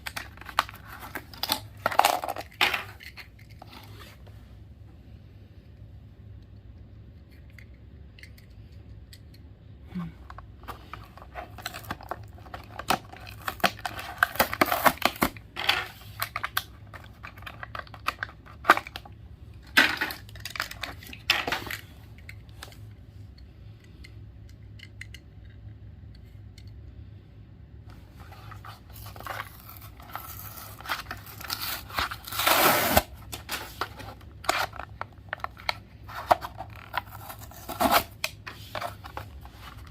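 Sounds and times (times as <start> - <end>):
plastic crinkling: 28.3 - 39.9
card tearing: 28.4 - 39.9.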